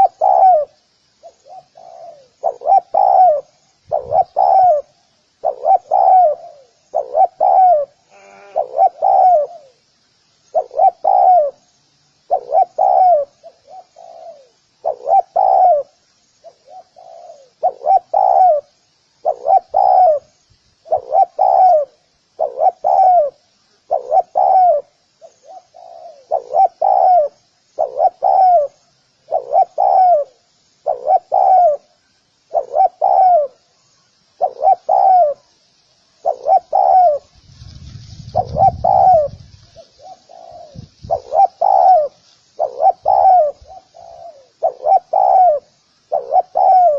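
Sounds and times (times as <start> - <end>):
dove cooing: 0.0 - 9.8, 10.5 - 11.7, 12.3 - 35.5, 36.2 - 46.9.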